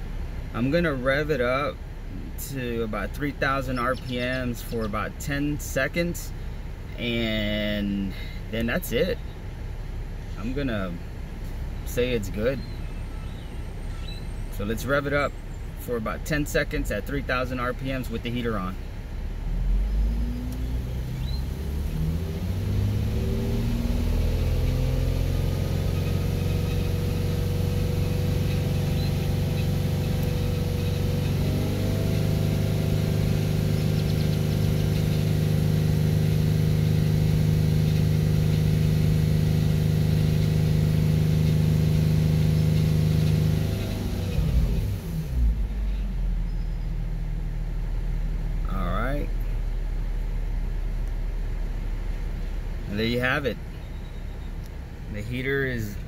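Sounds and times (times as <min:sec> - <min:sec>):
car engine revving: 0:16.0 - 0:56.0.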